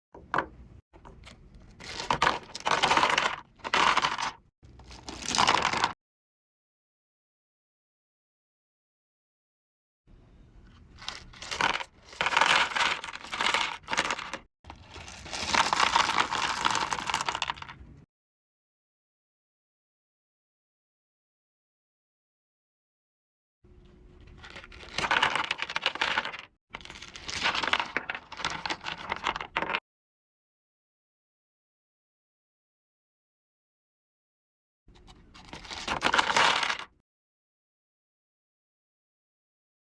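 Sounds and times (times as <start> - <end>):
packaging rustling and tearing: 1.8 - 6.0, 11.0 - 17.7, 35.4 - 36.9.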